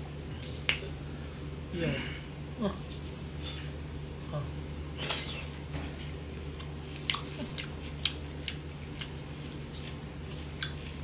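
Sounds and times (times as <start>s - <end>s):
person chewing: 5.0s - 11.0s
wet clicks and lip smacks: 6.6s - 9.2s.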